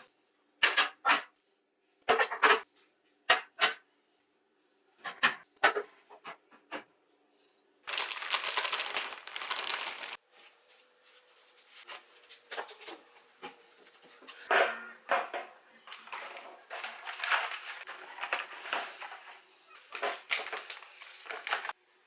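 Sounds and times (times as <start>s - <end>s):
kitchen items knocking and clattering: 0.6s - 1.3s, 2.1s - 2.7s, 5.0s - 6.9s, 14.2s - 21.8s.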